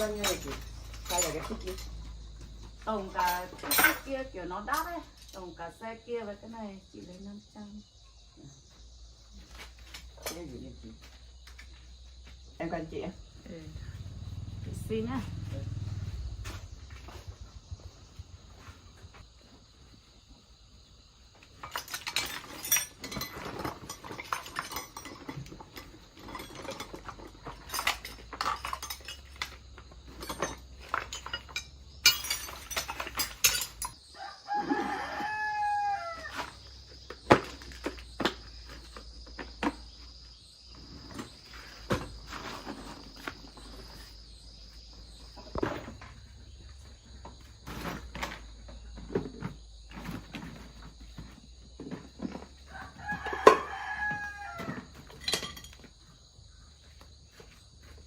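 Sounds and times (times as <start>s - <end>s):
rooster crowing: 34.1s - 36.6s, 52.7s - 54.9s.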